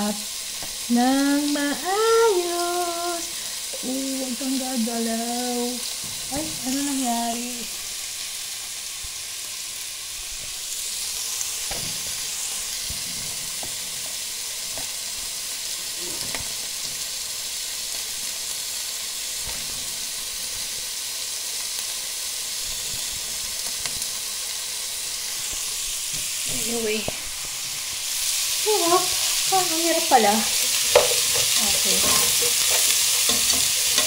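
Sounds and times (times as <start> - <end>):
vegetables sizzling in oil: 0.0 - 34.0
spatula knocking and scraping pot: 30.6 - 34.0.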